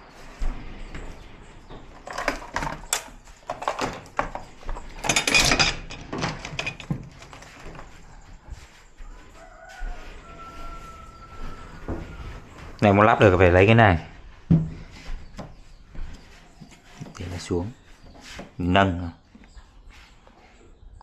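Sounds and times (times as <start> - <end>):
metal parts clattering and knocking: 2.0 - 7.7.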